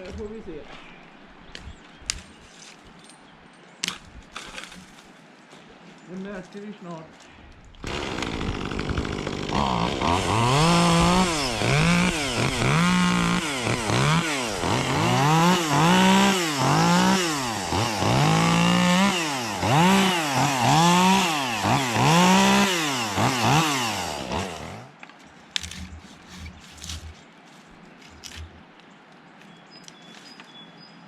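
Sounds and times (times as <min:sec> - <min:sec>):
chainsaw revving: 0:07.8 - 0:24.9.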